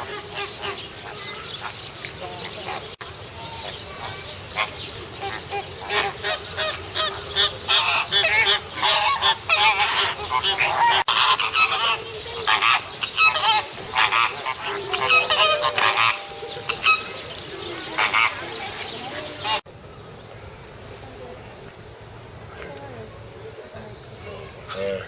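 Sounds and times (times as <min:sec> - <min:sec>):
flock of birds calling: 0:00.0 - 0:19.6.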